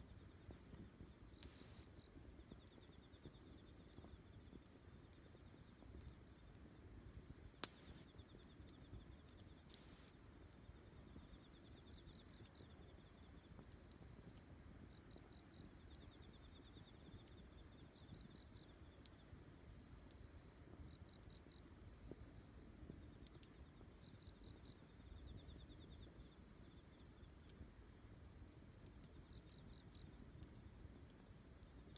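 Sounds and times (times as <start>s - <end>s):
campfire crackling and popping: 0.0s - 31.9s
insects chirping in trills: 1.2s - 6.2s, 7.5s - 22.7s, 23.3s - 27.3s.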